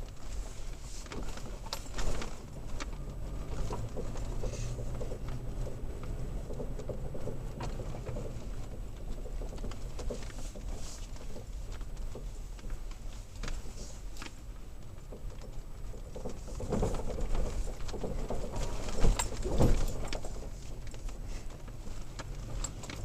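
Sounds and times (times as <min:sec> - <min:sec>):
engine and road rumble: 0:00.0 - 0:23.0
knocks and rattles over bumps: 0:00.0 - 0:23.0.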